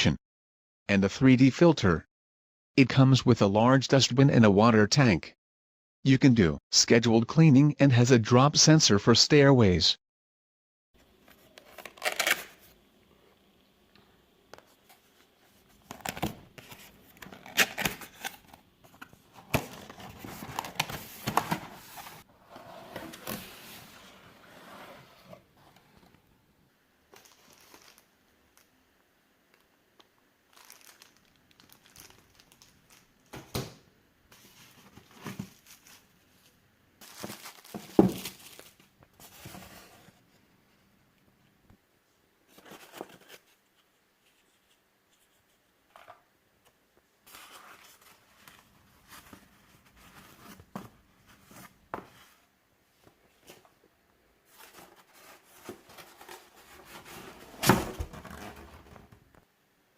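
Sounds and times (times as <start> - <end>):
packaging crinkling and rustling: 27.1 - 28.7, 30.5 - 33.3, 34.4 - 39.6.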